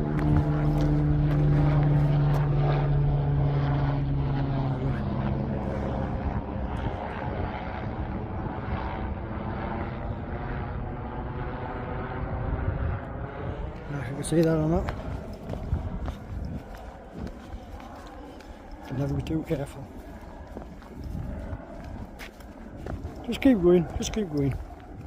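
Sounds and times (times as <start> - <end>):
helicopter rotor drone: 0.0 - 25.0.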